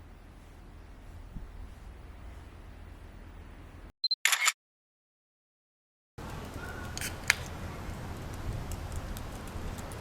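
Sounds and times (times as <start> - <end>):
outdoor background noise: 0.0 - 3.9, 6.2 - 10.0
camera shutter click: 4.2 - 4.6.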